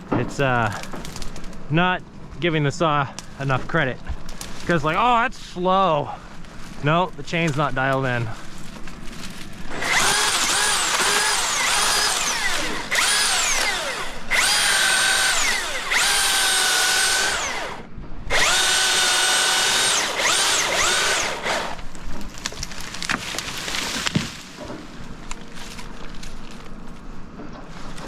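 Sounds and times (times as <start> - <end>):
chainsaw revving while cutting wood: 9.7 - 21.8.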